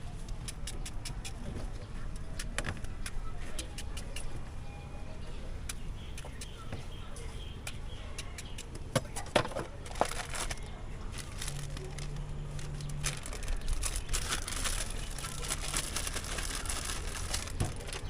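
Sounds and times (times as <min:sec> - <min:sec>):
sharp clicks: 0:00.3 - 0:01.4
plastic bag crinkling: 0:09.8 - 0:18.0.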